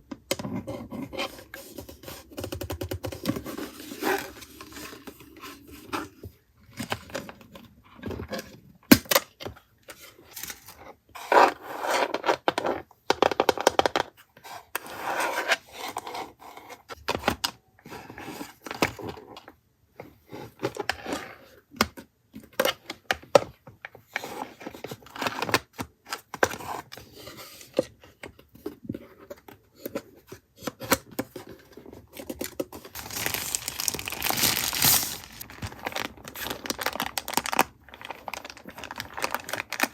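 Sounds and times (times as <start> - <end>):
paper tearing and crinkling: 32.9 - 39.9.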